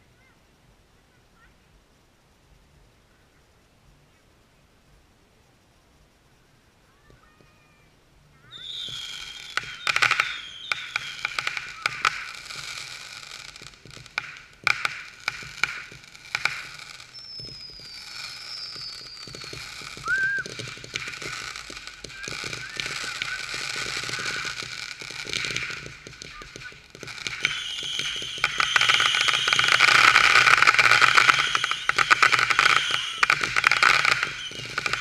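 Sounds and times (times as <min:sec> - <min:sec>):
firework fountains hissing and crackling: 0:06.4 - 0:35.0
falling firework whistle: 0:08.5 - 0:35.0
firework pops and bangs: 0:08.5 - 0:35.0.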